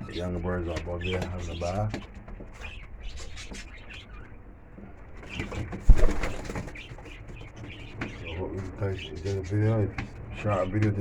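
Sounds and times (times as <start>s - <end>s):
wings flapping: 5.3s - 7.2s
pigeons cooing: 5.3s - 9.2s.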